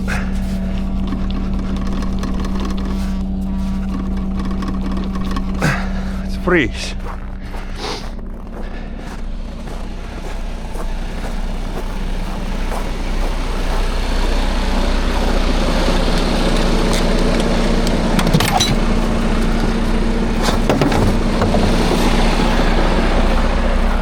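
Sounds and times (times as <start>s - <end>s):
truck engine running: 0.0s - 24.0s.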